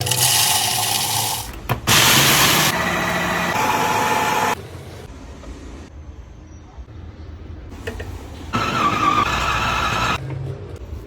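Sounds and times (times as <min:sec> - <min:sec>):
mixer grinder motor whine: 0:01.9 - 0:04.6, 0:08.6 - 0:10.2.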